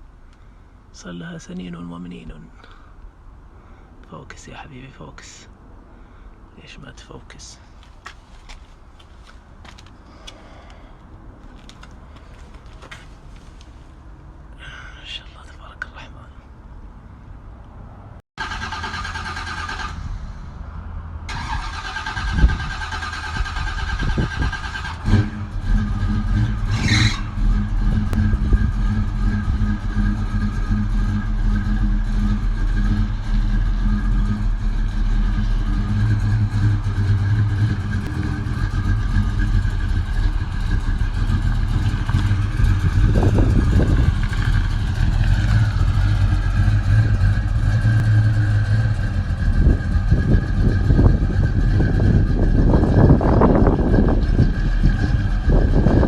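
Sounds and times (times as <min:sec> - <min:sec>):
car engine starting and idling: 0:18.4 - 0:56.0.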